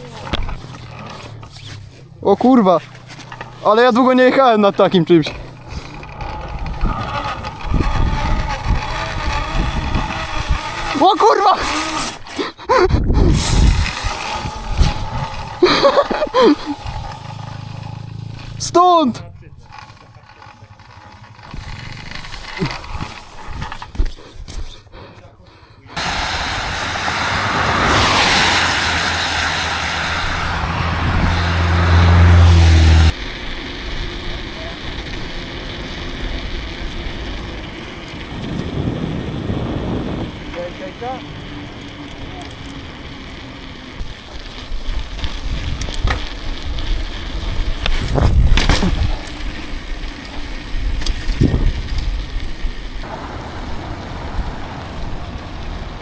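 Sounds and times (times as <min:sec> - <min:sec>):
bike tyre noise: 0:00.0 - 0:56.0
wind roaring on microphone: 0:05.7 - 0:18.1, 0:26.0 - 0:56.0
low hum: 0:26.0 - 0:40.4.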